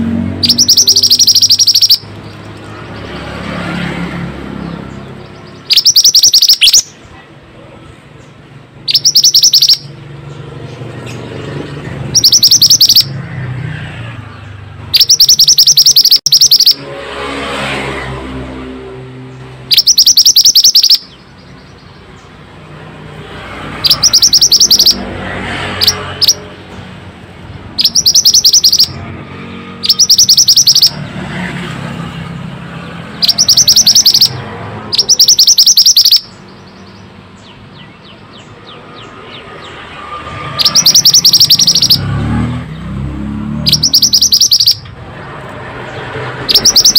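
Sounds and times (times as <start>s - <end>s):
bird rattling trills: 0.4s - 2.6s, 5.6s - 6.9s, 8.9s - 9.9s, 23.8s - 25.0s, 27.8s - 28.9s, 29.8s - 31.0s, 33.2s - 36.3s, 40.6s - 42.0s, 46.5s - 46.9s.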